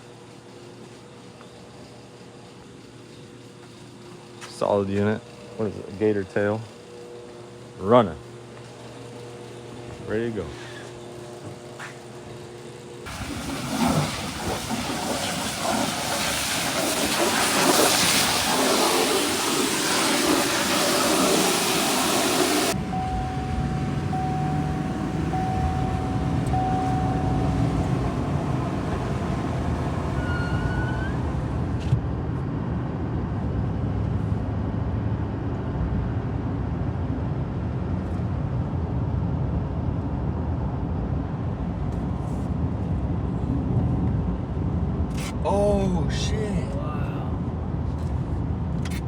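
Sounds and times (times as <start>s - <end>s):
vehicle engine rumbling: 22.7s - 35.4s
short rising squeak: 22.9s - 31.6s.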